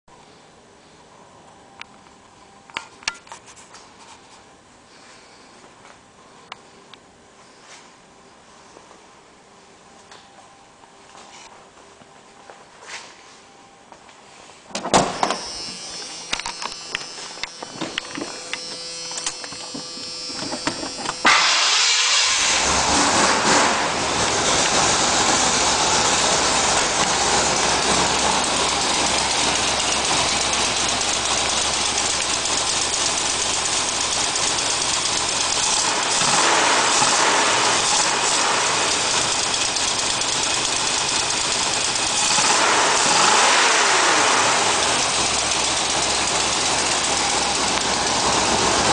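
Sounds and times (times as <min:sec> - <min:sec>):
engine rough idle: 0:16.5 - 0:48.9.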